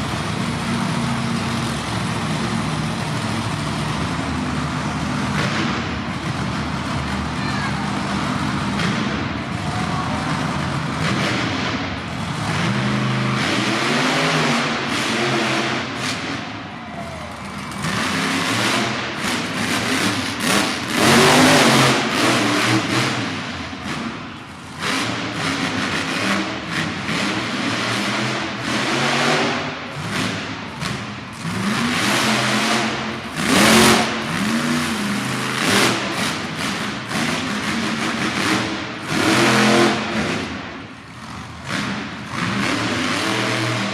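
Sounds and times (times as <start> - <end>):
truck engine revving hard: 0.0 - 43.9.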